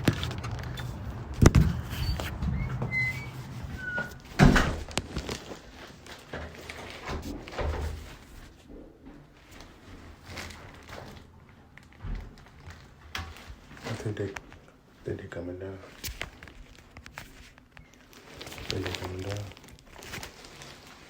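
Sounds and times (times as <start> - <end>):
sharp thuds and knocks: 0.0 - 3.0
low rumble: 0.0 - 3.8
high squeaks: 1.7 - 4.3.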